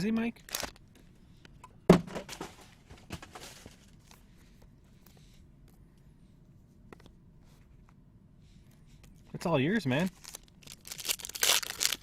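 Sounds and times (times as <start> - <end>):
trading cards rustling: 10.0 - 12.0.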